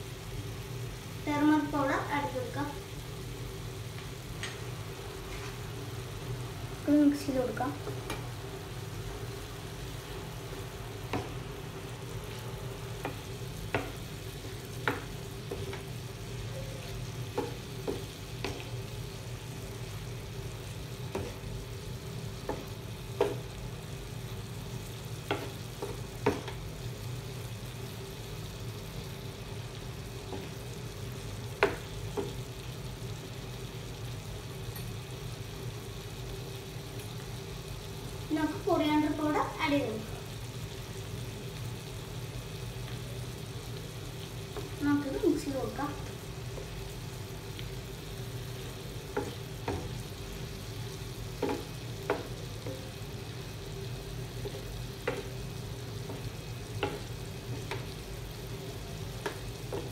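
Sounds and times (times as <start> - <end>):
chicken sizzling in oil: 0.0 - 59.9
spatula clicking and scraping pan: 16.9 - 18.8, 51.2 - 53.5, 54.3 - 58.1.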